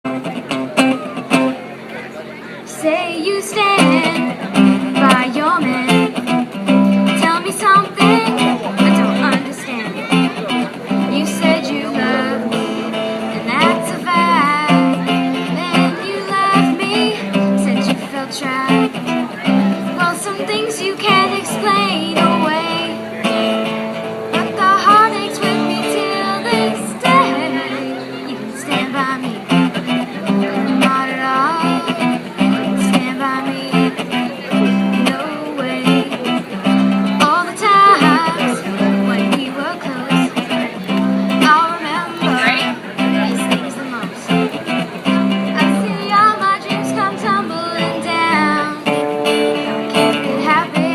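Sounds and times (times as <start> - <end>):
strummed acoustic guitar: 0.0 - 50.9
person singing: 2.7 - 50.9.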